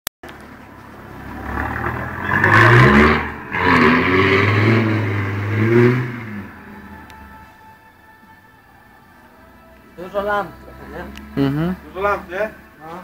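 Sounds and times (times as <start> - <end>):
car engine revving hard: 1.0 - 7.0.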